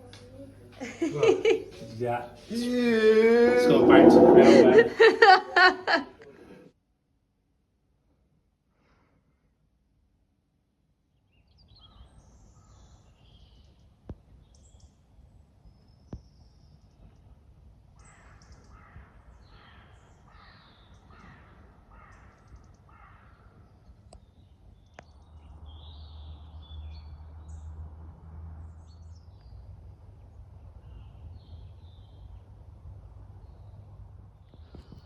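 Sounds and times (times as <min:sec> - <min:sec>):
bird cawing: 0:18.1 - 0:23.4.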